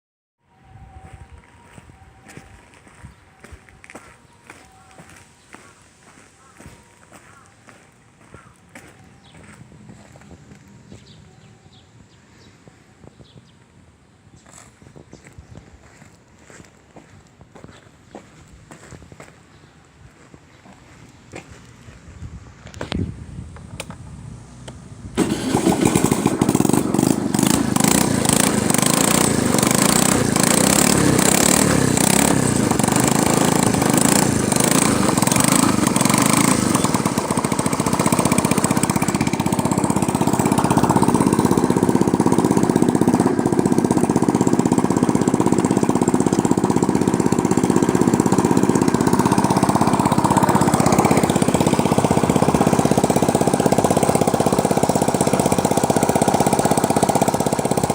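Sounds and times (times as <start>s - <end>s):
scooter engine running loud: 8.2s - 11.8s, 25.1s - 57.9s.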